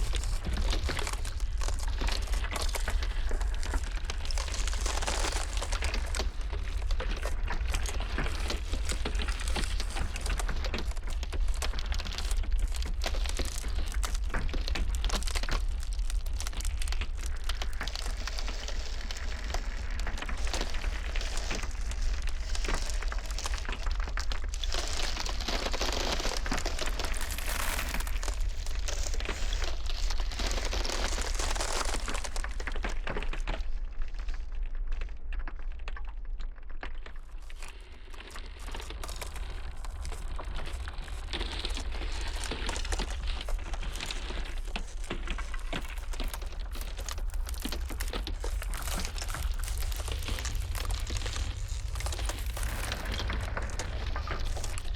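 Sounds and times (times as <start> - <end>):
ice cracking: 0.0 - 34.7, 35.3 - 54.9
low rumble: 45.4 - 54.9.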